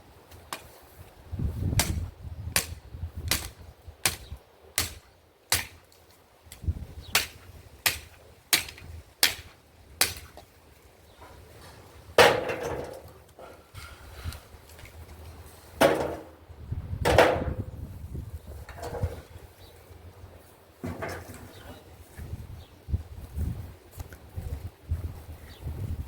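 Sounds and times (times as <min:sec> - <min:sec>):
axe chopping firewood: 0:01.7 - 0:05.9, 0:06.6 - 0:10.5, 0:12.2 - 0:13.1, 0:15.8 - 0:16.4.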